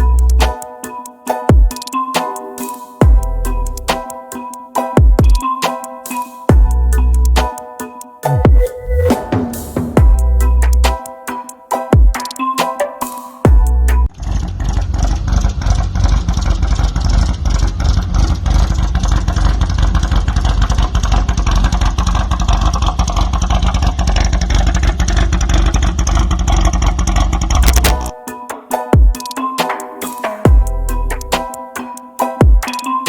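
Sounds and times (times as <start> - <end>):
car engine running loudly: 14.2 - 28.0.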